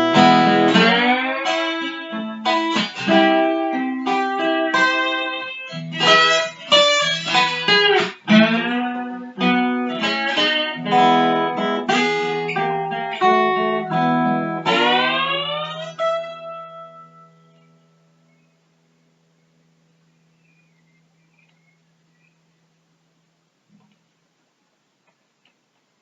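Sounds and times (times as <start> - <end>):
guitar plucked notes and chords: 0.0 - 18.4.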